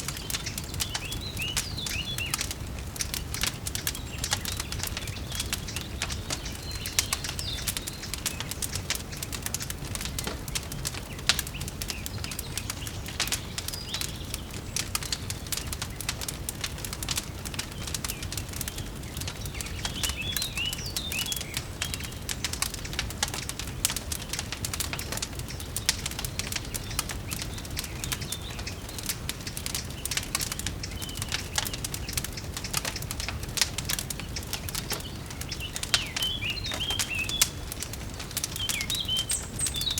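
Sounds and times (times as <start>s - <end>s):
bird chirps: 0.0s - 2.5s, 3.4s - 9.3s, 18.1s - 22.2s, 34.2s - 37.7s, 38.4s - 39.9s
wood fire crackling: 0.0s - 39.9s.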